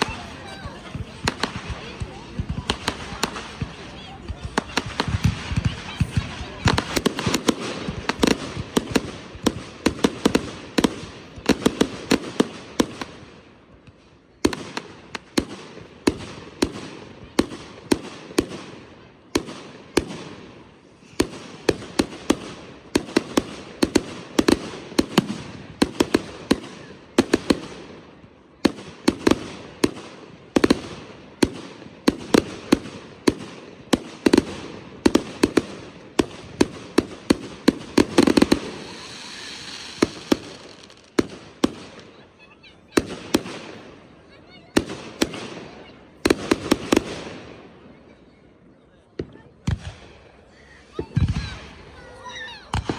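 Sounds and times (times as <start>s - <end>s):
fireworks crackle: 0.0s - 13.2s, 28.7s - 43.9s
fireworks bangs: 0.0s - 47.7s, 49.2s - 52.9s.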